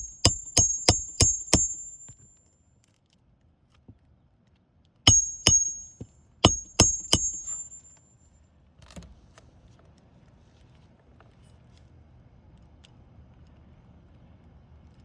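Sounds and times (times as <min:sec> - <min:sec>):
hammer striking nails: 0:00.0 - 0:02.3, 0:05.1 - 0:08.0.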